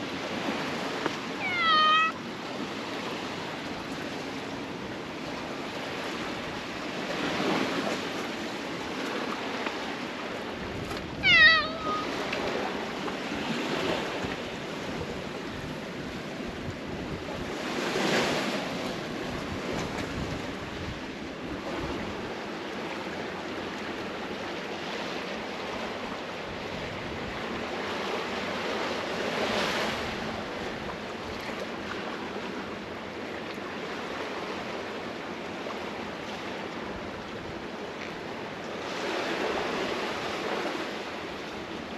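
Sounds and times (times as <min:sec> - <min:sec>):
sea waves washing against breakwater: 0:00.0 - 0:41.9
cat meowing: 0:01.4 - 0:02.3, 0:11.1 - 0:12.2.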